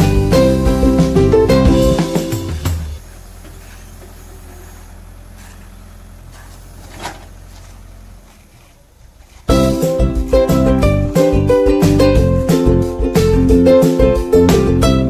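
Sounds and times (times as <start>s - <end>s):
music: 0.0s - 3.0s, 9.5s - 15.0s
diesel engine idling: 0.0s - 15.0s.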